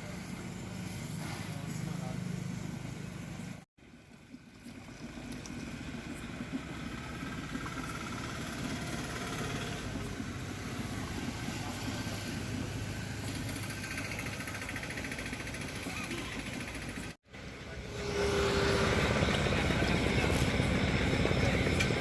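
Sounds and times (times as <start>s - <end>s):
road noise: 0.0s - 3.7s, 5.2s - 22.0s
vehicle engine running: 4.7s - 22.0s.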